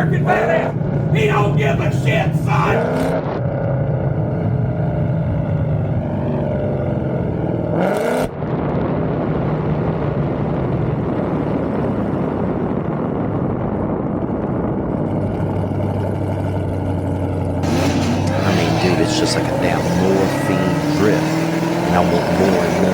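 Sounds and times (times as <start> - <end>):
car engine running: 0.0 - 3.0, 15.2 - 22.9
engine revving: 0.0 - 8.3, 17.6 - 22.9.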